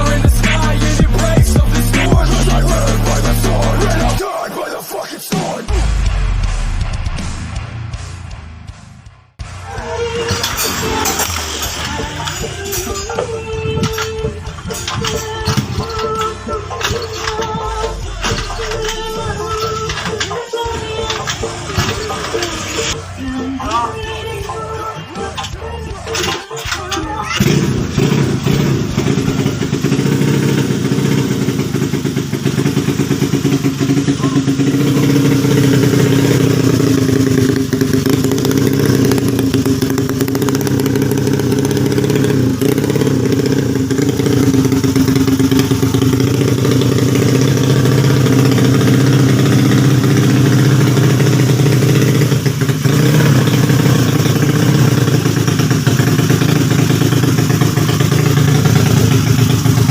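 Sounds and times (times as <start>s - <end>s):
scooter engine fast idle: 27.4s - 59.9s.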